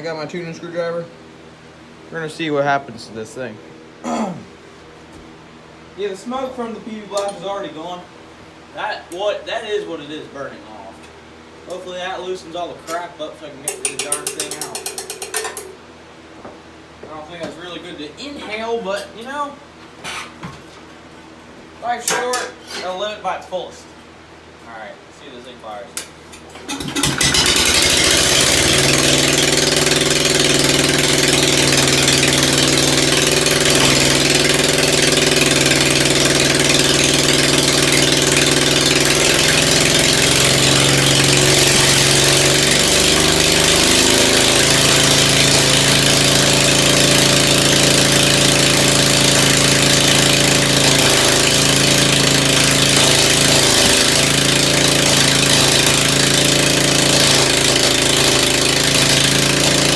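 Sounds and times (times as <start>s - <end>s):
car engine running: 26.7s - 59.9s.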